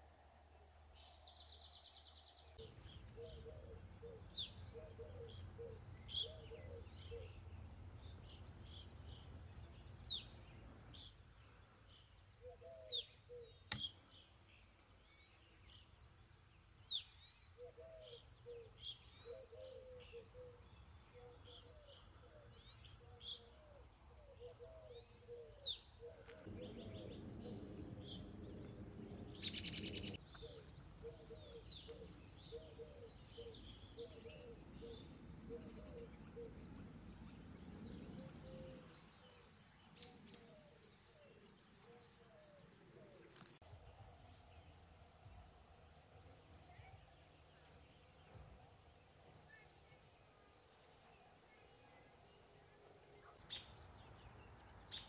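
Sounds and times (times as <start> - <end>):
birds chirping: 0.0 - 55.0
sharp click: 13.7 - 13.9.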